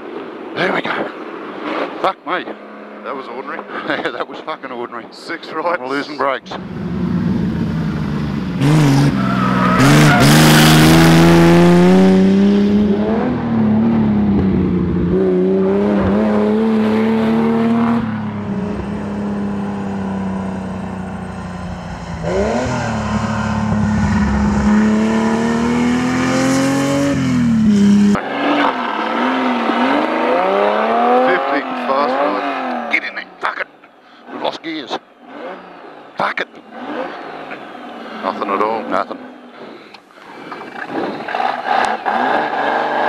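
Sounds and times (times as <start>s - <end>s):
car engine running hard: 6.5s - 32.8s
loud rush of noise: 17.3s - 27.1s.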